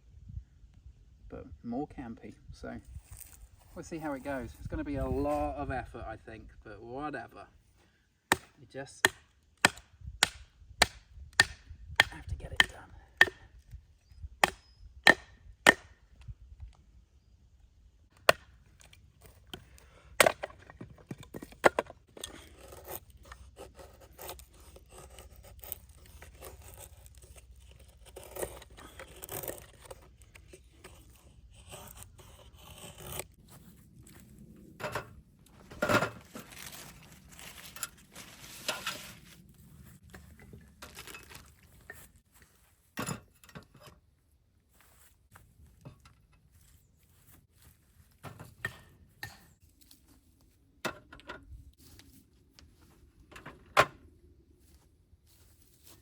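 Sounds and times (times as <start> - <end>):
wood scraping and splitting: 18.2 - 42.3.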